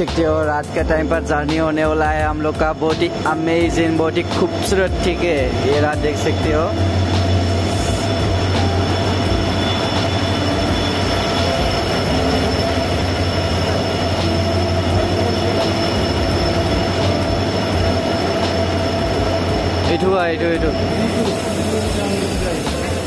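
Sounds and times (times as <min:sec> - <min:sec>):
train rumbling and rattling past: 0:00.0 - 0:23.0
high squeal from train wheels: 0:06.2 - 0:23.0.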